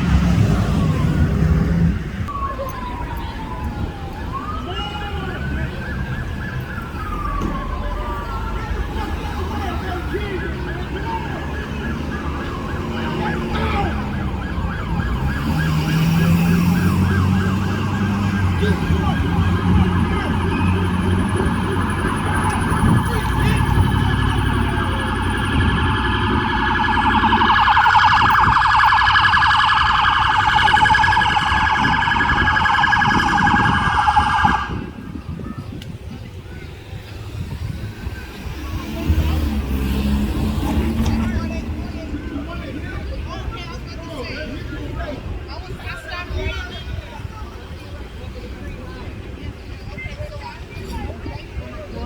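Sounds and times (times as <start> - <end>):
siren warbling: 2.3 - 35.4.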